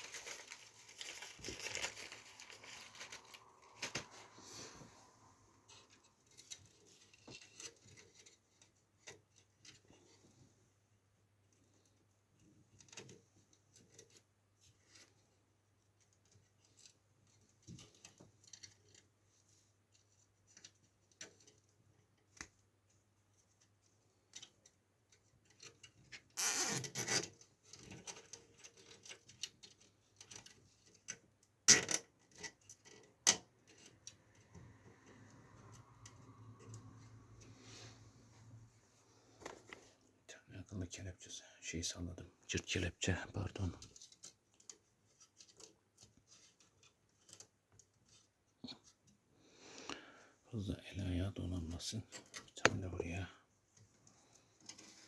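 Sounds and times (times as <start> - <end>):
cables clicking and rustling: 0.0 - 37.6, 38.3 - 40.8, 42.1 - 49.9, 51.6 - 55.0
velcro rasp: 26.4 - 27.3.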